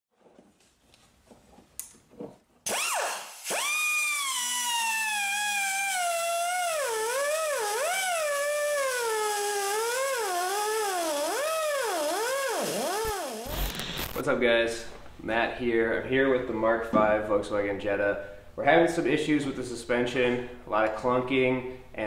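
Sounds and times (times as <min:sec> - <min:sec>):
pneumatic cut-off tool cutting metal: 0:02.7 - 0:14.2.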